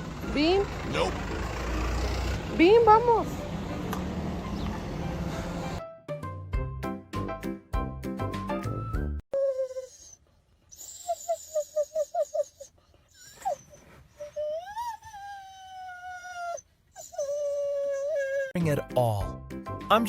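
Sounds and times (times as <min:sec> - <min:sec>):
dog whining and howling: 0:09.4 - 0:18.6
dog yelping: 0:09.8 - 0:18.6.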